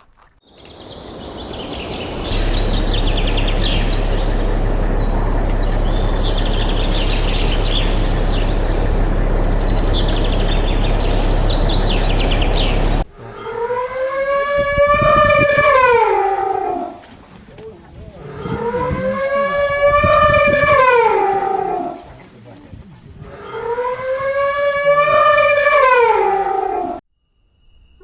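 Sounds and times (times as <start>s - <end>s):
high chirping calls: 0.5s - 13.0s
steady low hum: 0.9s - 13.1s
long howling animal call: 0.9s - 17.0s, 18.2s - 22.1s, 23.4s - 27.0s.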